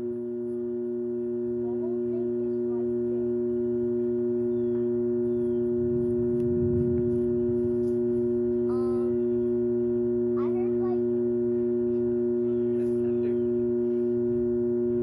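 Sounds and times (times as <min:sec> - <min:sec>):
steady two-tone hum: 0:00.0 - 0:15.0
low rumble: 0:04.8 - 0:10.4.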